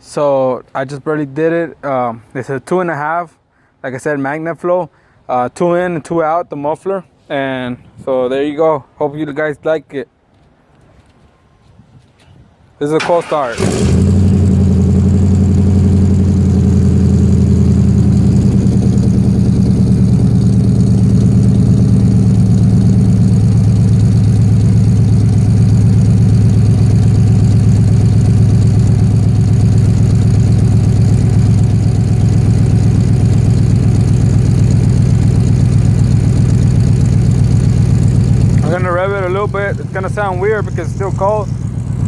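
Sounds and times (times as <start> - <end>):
pickup engine idling: 13.5 - 42.0.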